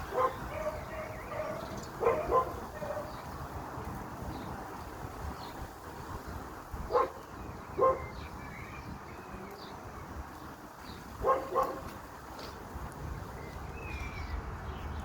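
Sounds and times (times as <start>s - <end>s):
dog barking: 0.0s - 3.2s, 6.9s - 7.2s, 7.8s - 8.2s, 11.2s - 11.9s.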